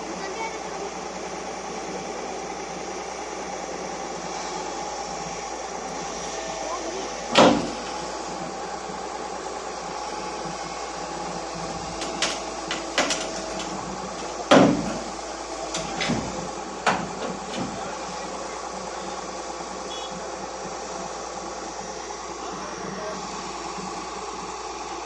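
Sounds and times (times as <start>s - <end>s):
excavator diesel engine running: 0.0s - 25.0s
heavy metal clunks: 7.3s - 8.0s, 11.8s - 18.0s.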